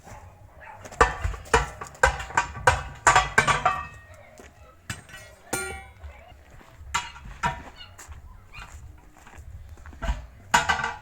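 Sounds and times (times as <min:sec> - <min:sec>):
hammer ringing on steel: 0:04.9 - 0:06.1.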